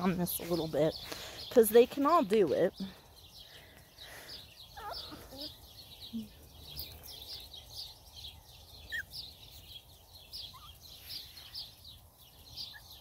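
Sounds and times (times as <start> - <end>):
bird short high chirps: 8.8 - 11.8.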